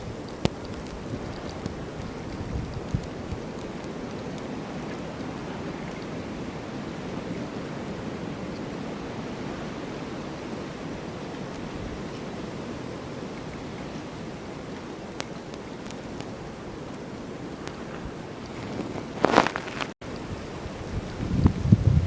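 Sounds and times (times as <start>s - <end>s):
wind blowing: 0.0s - 22.0s
faint ticks: 0.2s - 5.0s.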